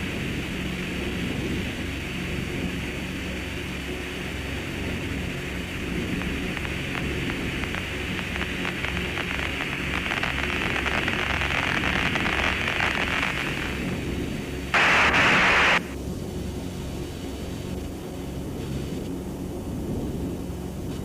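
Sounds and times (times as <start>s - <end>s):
low hum: 0.0s - 21.0s
static crackles: 4.9s - 16.0s
radio static hiss: 5.0s - 16.0s.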